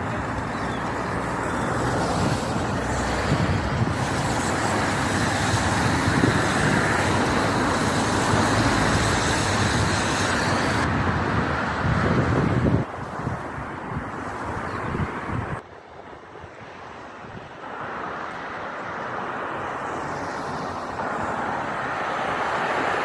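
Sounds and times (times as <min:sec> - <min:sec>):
road traffic passing: 0:00.0 - 0:23.0.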